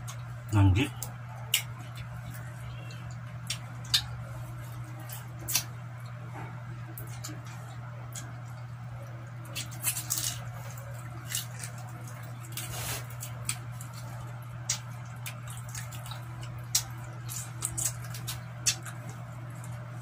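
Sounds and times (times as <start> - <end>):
squelchy chewing and smacks: 13.2 - 19.9.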